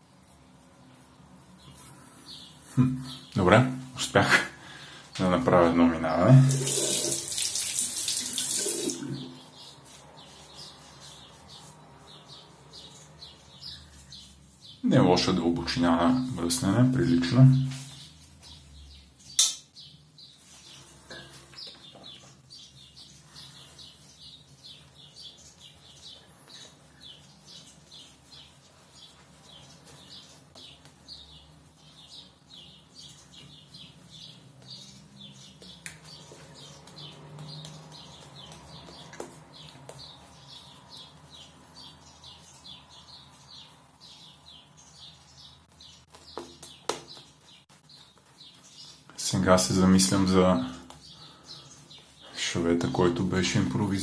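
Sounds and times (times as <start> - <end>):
small bird chirping: 6.5 - 15.0, 17.8 - 49.2.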